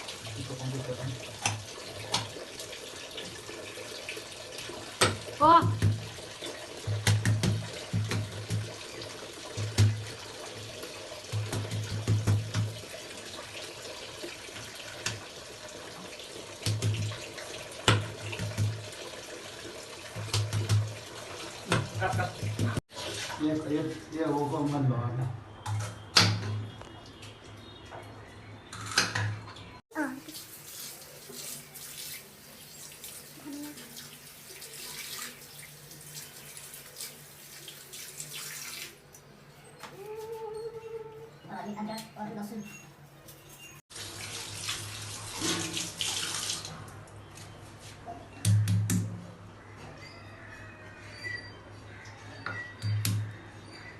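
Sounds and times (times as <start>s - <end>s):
water running and splashing: 0.0s - 24.7s, 29.9s - 39.2s, 43.8s - 46.8s.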